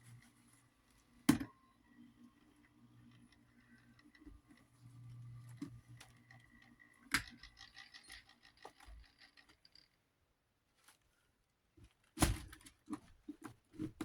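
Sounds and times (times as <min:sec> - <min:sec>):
faint steady hum: 0:00.0 - 0:09.8
fan parts clicking and clinking: 0:05.6 - 0:10.0.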